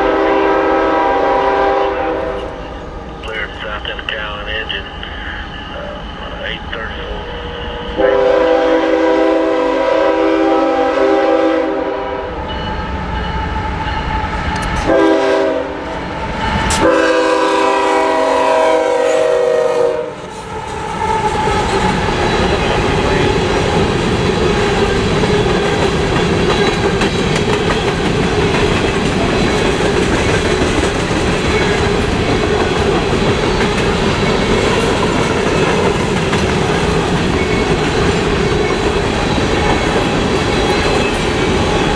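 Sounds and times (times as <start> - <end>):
locomotive air horn blasts: 0.0 - 2.4, 7.5 - 12.3, 14.8 - 15.8, 16.8 - 20.2
train rumbling past: 0.0 - 41.9
wheels clattering on rails: 20.7 - 41.9.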